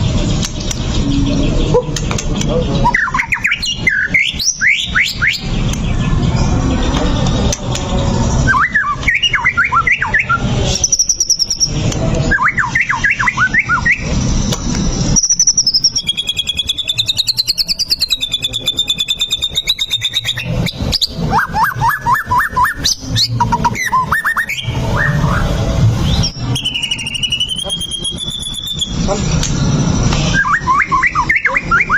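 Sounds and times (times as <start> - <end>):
songbird whistling: 2.8 - 5.5, 8.5 - 14.2, 14.8 - 29.5, 30.1 - 31.9.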